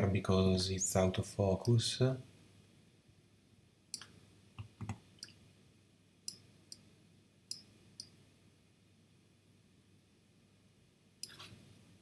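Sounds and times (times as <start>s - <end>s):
computer mouse clicking: 4.0s - 5.4s, 11.2s - 11.5s.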